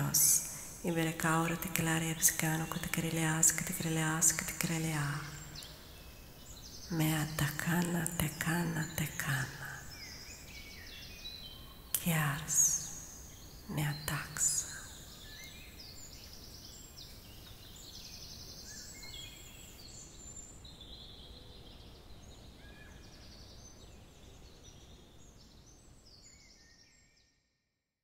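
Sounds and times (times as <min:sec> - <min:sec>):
birds singing trilled phrases: 0:00.0 - 0:21.3.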